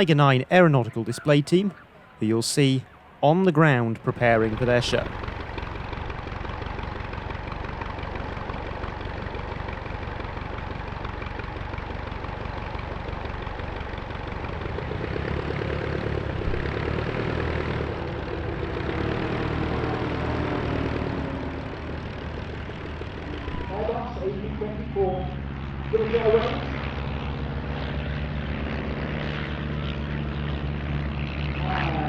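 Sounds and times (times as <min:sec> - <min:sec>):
biplane engines idling: 0:00.0 - 0:32.0
louder steady engine note: 0:00.0 - 0:32.0.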